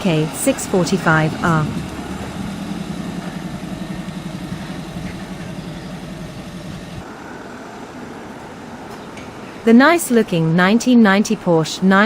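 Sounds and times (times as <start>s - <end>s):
car engine idling: 0.0s - 7.1s.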